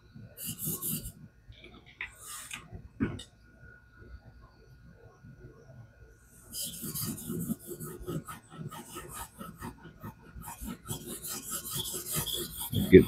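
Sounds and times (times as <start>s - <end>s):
knife blade scraping on whetstone: 6.5s - 13.0s.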